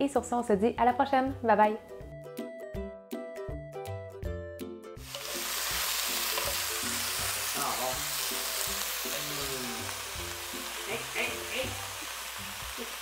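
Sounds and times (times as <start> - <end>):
noodles sizzling in a wok: 5.0 - 13.0.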